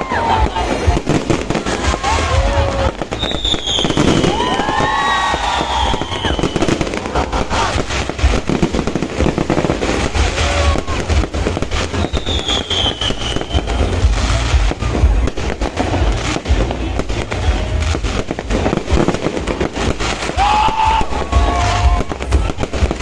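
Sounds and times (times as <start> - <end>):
deep firework booms: 0.0 - 23.0
firework bangs and crackles: 0.0 - 23.0
high firework whistle: 1.6 - 8.7, 9.4 - 14.5.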